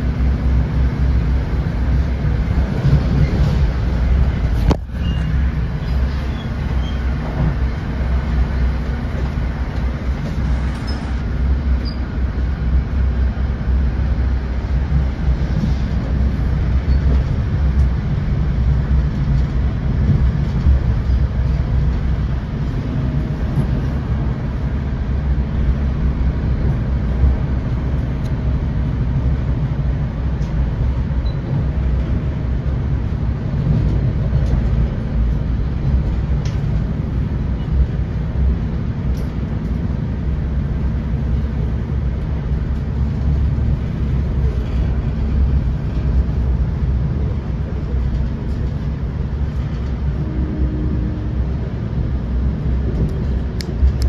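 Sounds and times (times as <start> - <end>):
train coach rumble: 0.0 - 54.0.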